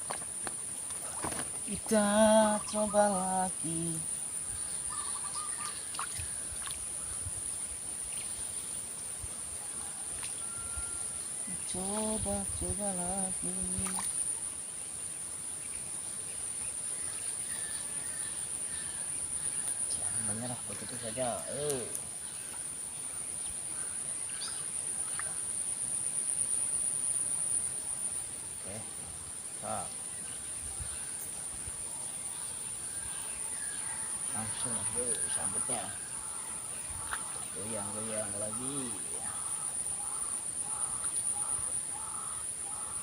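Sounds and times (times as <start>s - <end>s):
insects droning: 0.0s - 43.0s
high-pitched insect drone: 1.2s - 5.8s, 10.4s - 14.7s, 34.3s - 36.4s.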